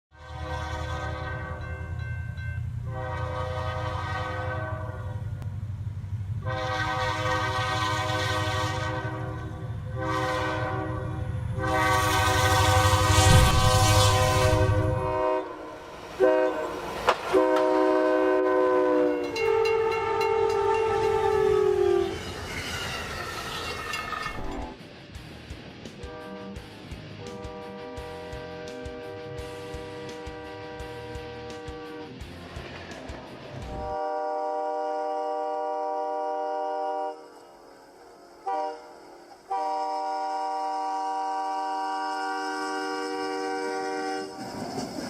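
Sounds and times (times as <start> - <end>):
locomotive air horn: 0.1 - 2.0, 2.8 - 5.4, 6.4 - 22.5, 26.0 - 32.2, 33.7 - 44.5
moving train rumble: 0.1 - 45.0.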